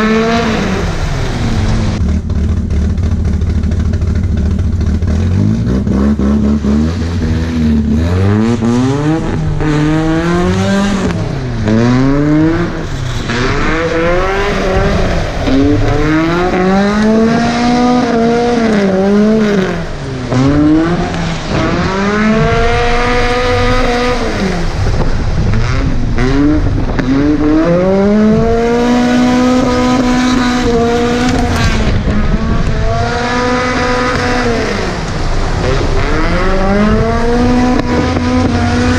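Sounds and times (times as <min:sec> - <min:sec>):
car engine revving hard: 0:00.0 - 0:02.9, 0:04.0 - 0:38.9.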